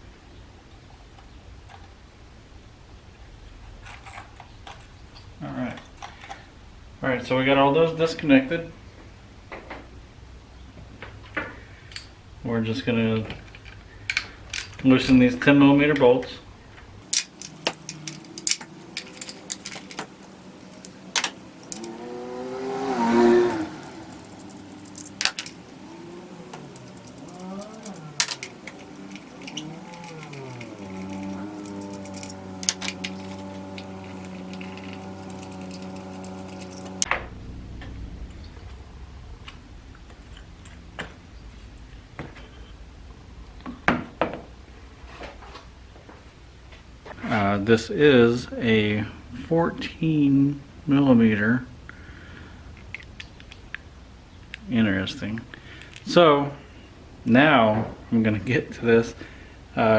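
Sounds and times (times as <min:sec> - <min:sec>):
ratchet and metal tools clicking: 0:17.1 - 0:37.1
vehicle passing by: 0:17.1 - 0:37.9.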